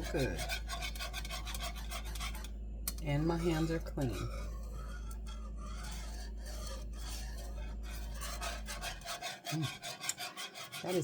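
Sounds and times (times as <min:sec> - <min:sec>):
steady low hum: 0:00.0 - 0:11.0
even rasping noise: 0:03.2 - 0:11.0.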